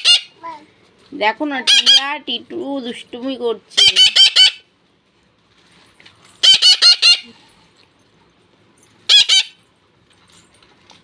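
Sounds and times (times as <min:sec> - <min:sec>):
parakeets screeching: 0:00.0 - 0:00.4, 0:01.7 - 0:02.2, 0:03.8 - 0:04.6, 0:06.4 - 0:07.3, 0:09.1 - 0:09.6.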